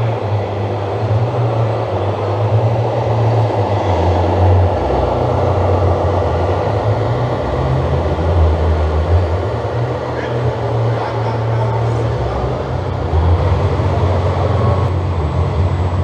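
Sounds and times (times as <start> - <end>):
busy exhibition hall noise: 0.0 - 16.0
model truck diesel engine rumble: 0.0 - 16.0.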